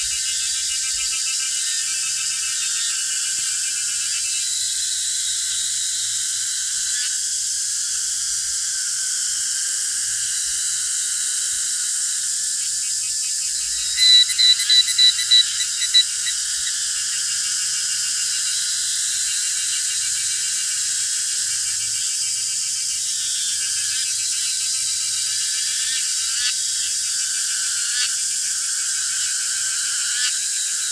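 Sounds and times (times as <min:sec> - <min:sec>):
high-pitched insect chorus: 0:00.0 - 0:30.9
loud sharp chirps: 0:13.6 - 0:16.7.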